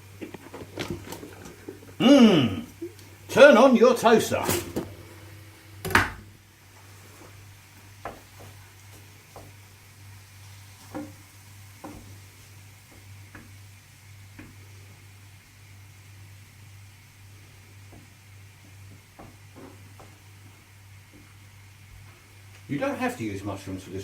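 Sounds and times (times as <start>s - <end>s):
steady low hum: 0.0s - 10.4s
utensil tapping in frying pan: 7.8s - 14.7s, 17.7s - 21.5s.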